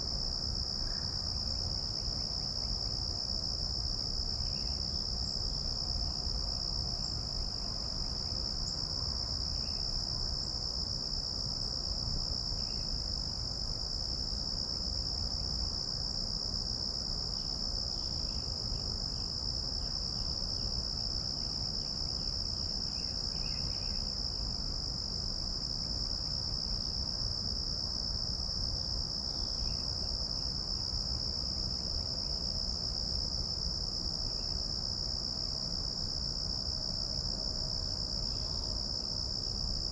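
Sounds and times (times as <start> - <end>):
insects trilling: 17.3 - 27.0.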